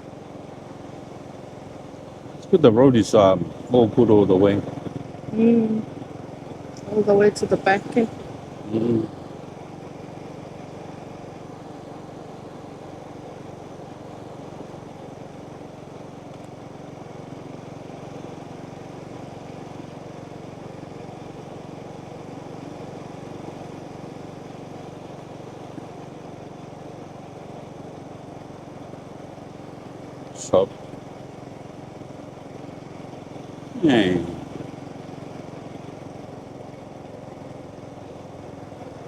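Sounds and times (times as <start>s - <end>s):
motorbike engine running: 0.0s - 39.0s.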